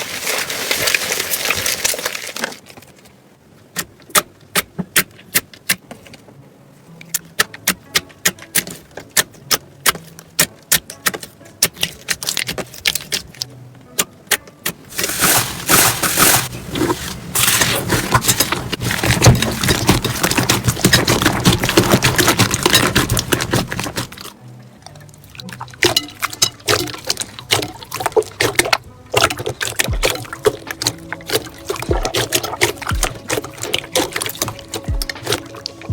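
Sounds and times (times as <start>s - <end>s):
slime crackling: 14.9s - 24.4s, 25.6s - 35.9s.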